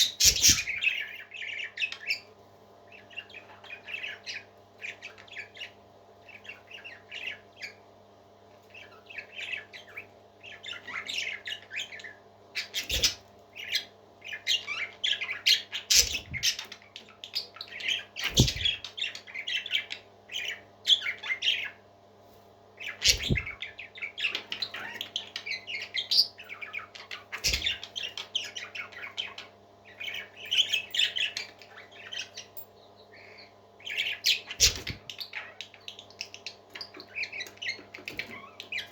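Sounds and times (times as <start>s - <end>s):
parrots chirping and squawking: 0.0s - 2.3s, 2.9s - 7.9s, 8.7s - 21.8s, 22.8s - 38.9s
steady low hum: 0.0s - 24.2s.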